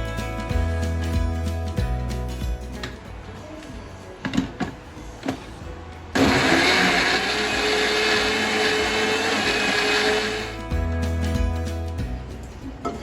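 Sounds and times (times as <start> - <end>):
mixer grinder whining and churning: 6.2 - 10.6.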